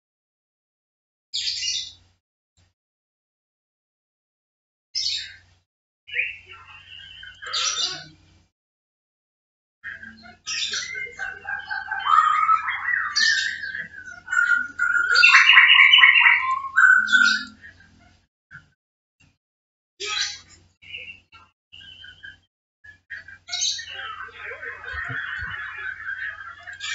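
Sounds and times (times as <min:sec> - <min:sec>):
bird chirping and warbling: 0:01.4 - 0:02.0, 0:05.0 - 0:05.5, 0:06.1 - 0:08.2, 0:09.8 - 0:18.2, 0:20.0 - 0:26.9.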